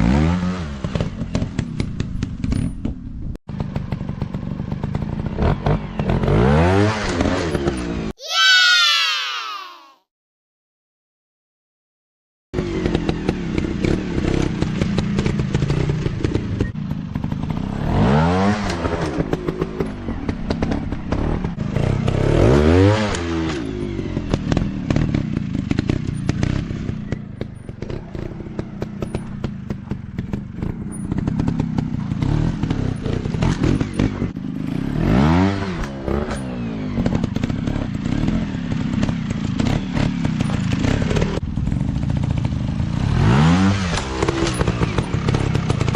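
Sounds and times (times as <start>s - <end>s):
dirt bike engines revving: 12.6s - 45.9s.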